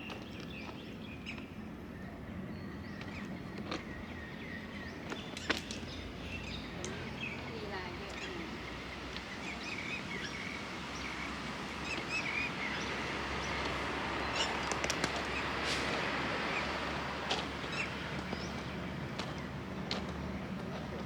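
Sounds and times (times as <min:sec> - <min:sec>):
small birds chirping: 0:00.0 - 0:15.6
outdoor background noise: 0:00.0 - 0:21.0.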